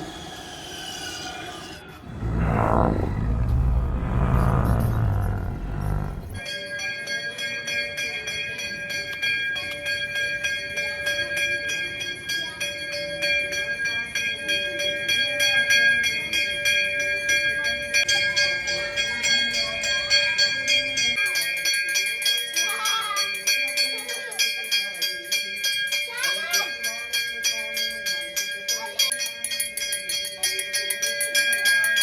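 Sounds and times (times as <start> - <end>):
low rumble: 2.0 - 6.4.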